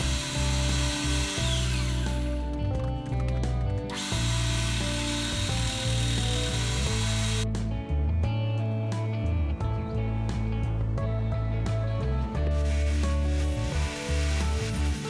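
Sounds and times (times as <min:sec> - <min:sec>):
power grinder on metal: 0:00.0 - 0:02.4, 0:03.9 - 0:07.4, 0:12.7 - 0:15.0
background music with bass: 0:00.0 - 0:15.0.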